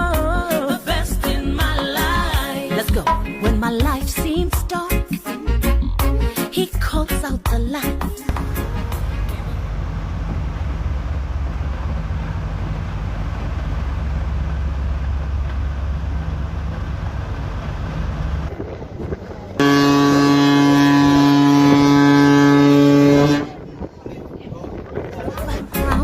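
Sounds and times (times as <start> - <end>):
low rumble: 8.3 - 25.7
ship's horn blast: 19.5 - 23.8.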